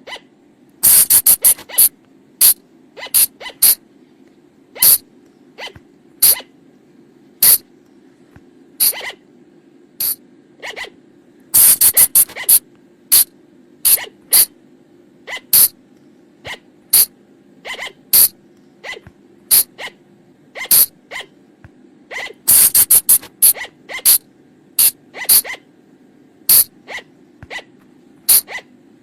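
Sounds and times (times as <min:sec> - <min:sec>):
short shrill animal calls: 0:00.0 - 0:03.8, 0:04.8 - 0:05.0, 0:05.6 - 0:06.5, 0:07.4 - 0:07.6, 0:08.8 - 0:09.2, 0:10.0 - 0:11.0, 0:11.6 - 0:14.5, 0:15.2 - 0:15.8, 0:16.5 - 0:20.0, 0:20.6 - 0:21.4, 0:22.1 - 0:24.2, 0:24.8 - 0:25.7, 0:26.5 - 0:27.7, 0:28.3 - 0:28.7
low steady hum: 0:00.0 - 0:29.0.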